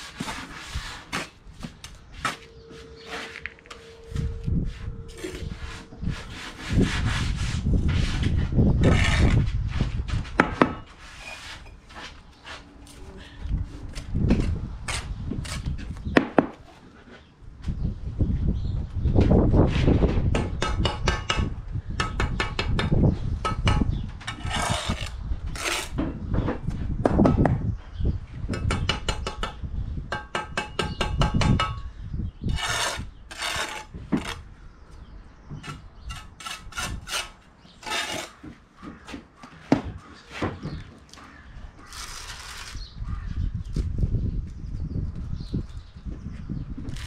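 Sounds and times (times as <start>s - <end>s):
trowel scraping mortar: 0.0s - 1.4s, 4.8s - 9.9s, 10.8s - 12.7s, 24.3s - 26.0s, 32.4s - 34.5s, 35.6s - 38.5s, 41.8s - 42.8s.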